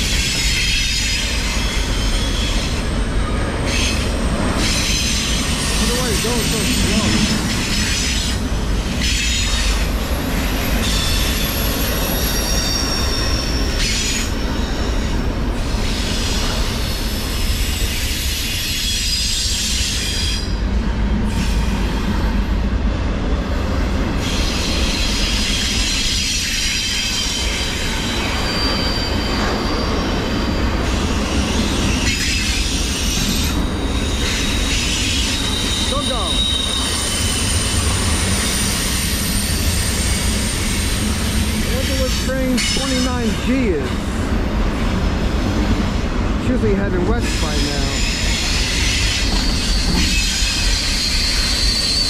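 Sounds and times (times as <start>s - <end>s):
steel wheels rumbling on rail: 0.0s - 52.0s
high-pitched wheel squeal: 10.8s - 15.1s, 24.2s - 43.2s, 47.3s - 52.0s.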